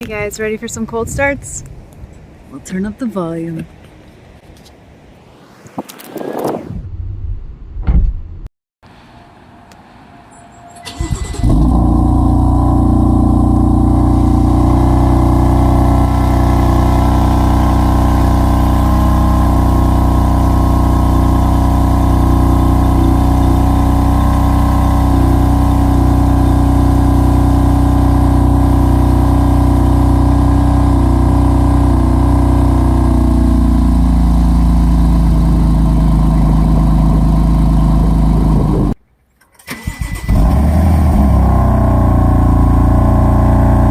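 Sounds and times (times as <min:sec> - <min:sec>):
car engine idling: 0:10.8 - 0:39.0, 0:41.0 - 0:43.9.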